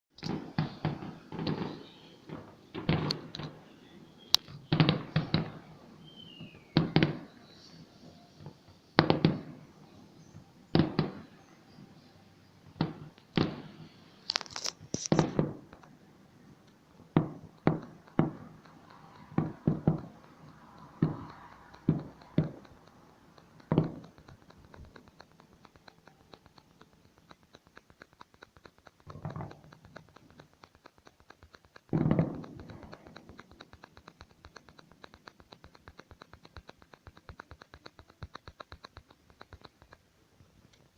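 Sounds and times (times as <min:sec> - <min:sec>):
faint ticks: 0:00.2 - 0:40.9
fireworks bangs with echo: 0:00.3 - 0:07.8, 0:08.4 - 0:09.8, 0:10.7 - 0:11.6, 0:12.8 - 0:14.0, 0:15.1 - 0:15.7, 0:17.0 - 0:22.8, 0:23.6 - 0:24.2, 0:31.9 - 0:33.4.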